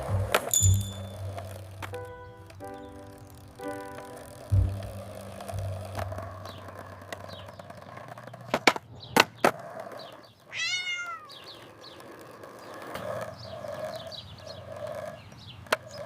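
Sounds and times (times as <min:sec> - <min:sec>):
cat meowing: 0:10.5 - 0:11.5.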